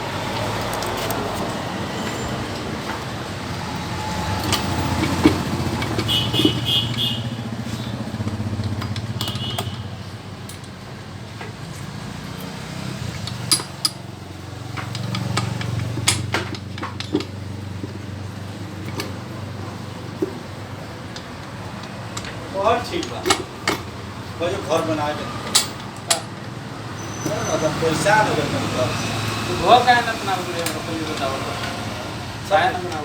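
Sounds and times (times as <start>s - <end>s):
motorcycle engine running: 3.0s - 13.1s
sharp metallic clicks: 3.4s - 10.8s, 21.1s - 26.6s.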